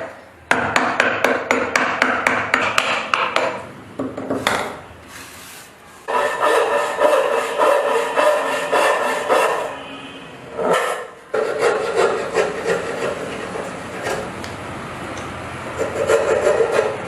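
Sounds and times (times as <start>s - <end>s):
hand rubbing wood: 4.3s - 9.7s, 10.5s - 14.2s.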